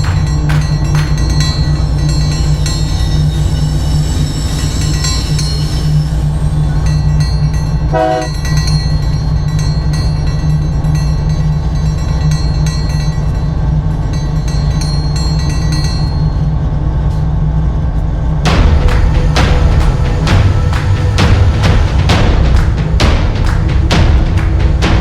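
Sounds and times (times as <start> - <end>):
locomotive engine drone: 0.0 - 14.9, 15.8 - 25.0
rail noise: 0.0 - 25.0
train horn blast: 7.9 - 8.4, 18.5 - 25.0.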